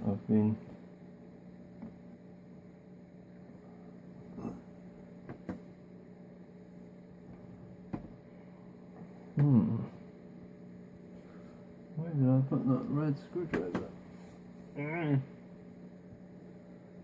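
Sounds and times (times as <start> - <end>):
steady electrical hum: 0.0 - 17.0
man humming: 9.4 - 10.0.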